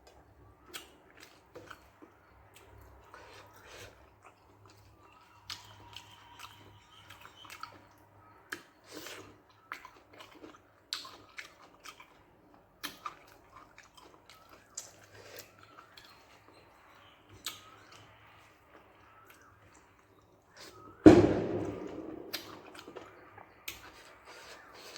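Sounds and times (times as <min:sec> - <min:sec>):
person chewing food: 0:00.0 - 0:21.0, 0:22.3 - 0:24.9.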